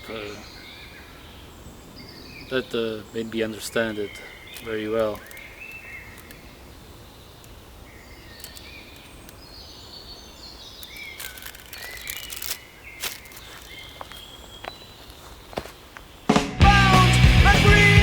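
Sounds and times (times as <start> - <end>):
small birds chirping: 0.0 - 16.4
sharp clicks: 4.4 - 6.6, 7.3 - 7.6, 8.2 - 9.6, 10.7 - 14.2.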